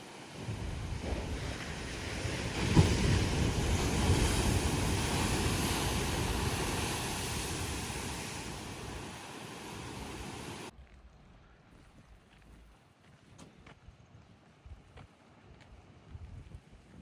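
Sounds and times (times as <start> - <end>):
wave breaking on rocky shore: 0.0 - 10.7
wind buffeting microphone: 0.1 - 10.7.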